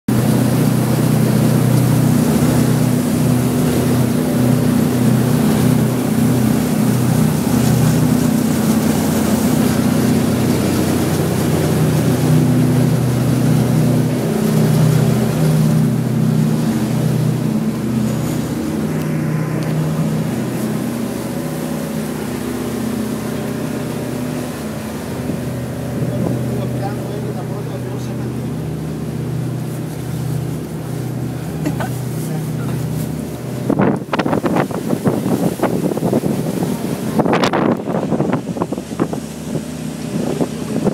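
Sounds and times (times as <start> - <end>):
boat engine humming: 0.1 - 40.9
wind and water rushing: 0.1 - 40.9.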